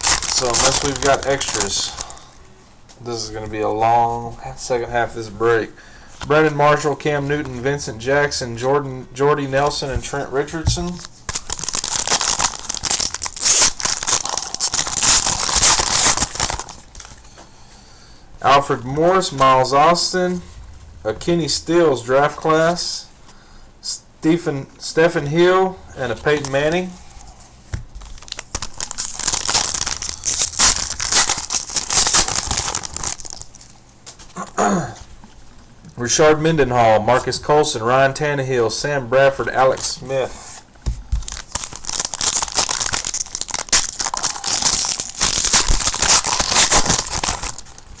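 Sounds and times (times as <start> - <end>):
plastic wrapper tearing and crinkling: 0.0 - 2.2, 11.0 - 17.2, 27.9 - 34.3, 41.1 - 48.0.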